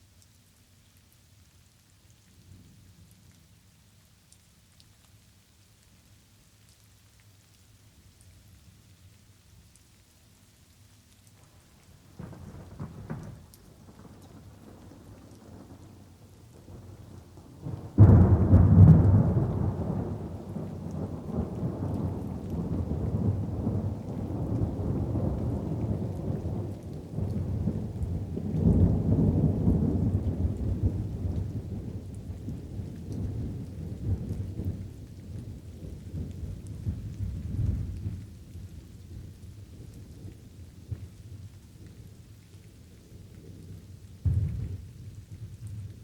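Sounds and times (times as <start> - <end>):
light rain pattering: 0.0 - 46.0
thunder rumbling: 17.6 - 31.8, 44.2 - 46.0
loud thunderclap: 17.9 - 20.4, 44.2 - 45.0.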